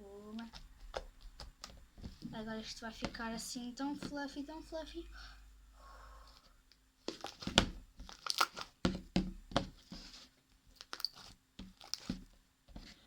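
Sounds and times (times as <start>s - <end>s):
slime squishing: 7.0s - 13.0s.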